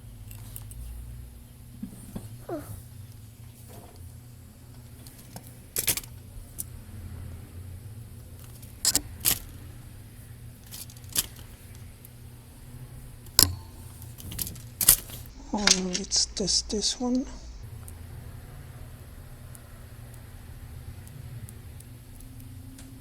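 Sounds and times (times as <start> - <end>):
steady low hum: 0.0 - 23.0
small tools clicking and tapping: 4.7 - 6.8, 8.4 - 9.7, 10.6 - 12.2, 13.2 - 16.3.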